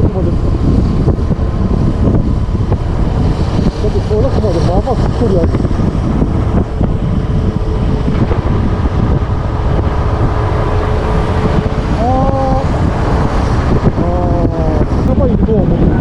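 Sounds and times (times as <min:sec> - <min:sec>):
motorcycle engine running: 0:00.0 - 0:15.4
wind buffeting microphone: 0:00.0 - 0:16.0.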